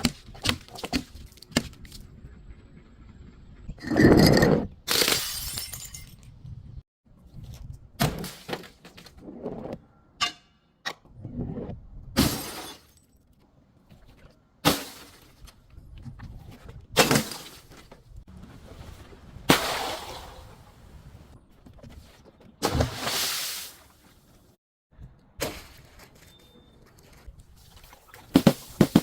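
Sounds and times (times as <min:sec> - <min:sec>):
glass bottles shattering: 0:04.9 - 0:06.3, 0:12.2 - 0:13.0.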